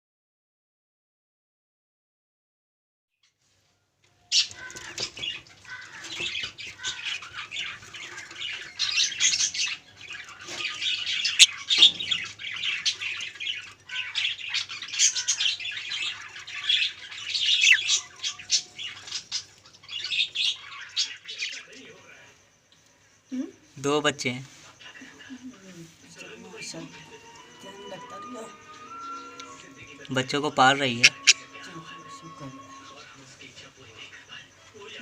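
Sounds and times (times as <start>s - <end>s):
budgerigars chattering and squawking: 4.3s - 22.0s, 28.7s - 35.0s.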